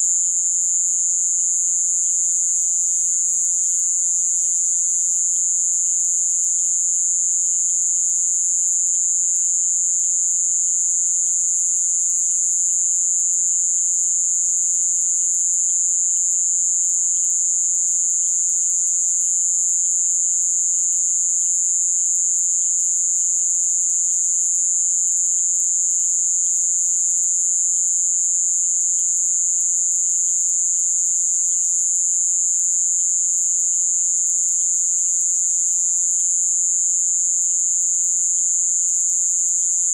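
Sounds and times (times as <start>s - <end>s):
rapid insect chirping: 0.0s - 29.4s
high-pitched insect trill: 0.0s - 39.9s.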